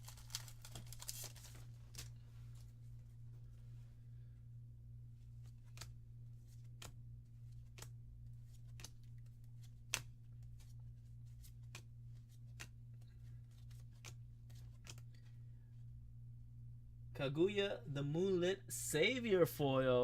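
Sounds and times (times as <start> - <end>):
low electrical hum: 0.0 - 20.0
trading cards clicking: 13.6 - 15.3.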